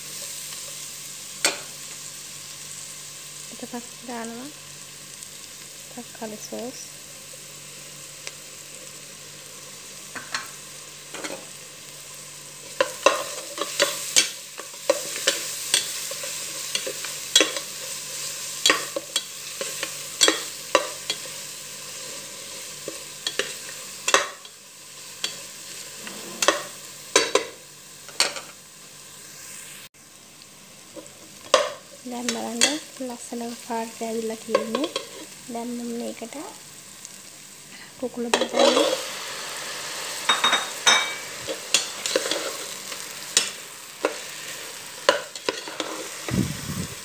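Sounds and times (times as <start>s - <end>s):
onions sizzling in oil: 0.0s - 47.0s
spoon scraping against pot: 25.2s - 27.5s, 38.4s - 39.0s, 40.3s - 42.8s, 45.1s - 46.2s.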